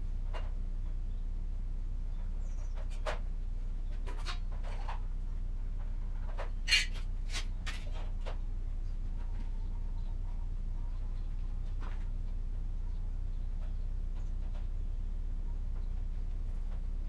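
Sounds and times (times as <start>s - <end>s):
low electrical hum: 0.0s - 17.0s
light clicks and scrapes: 3.9s - 5.2s, 5.8s - 10.2s.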